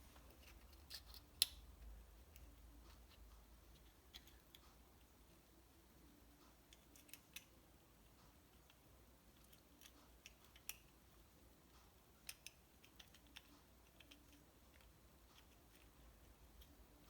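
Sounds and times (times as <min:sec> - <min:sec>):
faint clicks of small parts: 0:00.2 - 0:05.3, 0:06.4 - 0:17.0.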